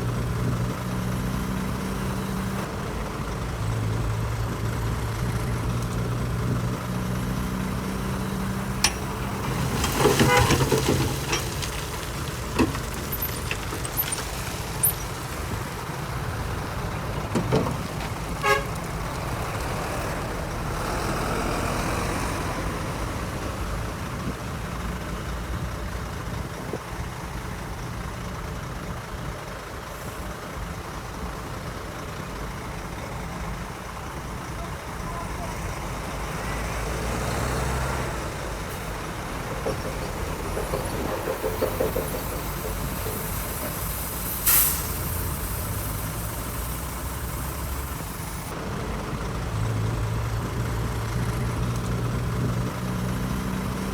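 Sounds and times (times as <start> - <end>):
diesel machinery running: 0.0 - 53.9
metallic clanks and knocks: 8.6 - 15.0, 38.7 - 44.3.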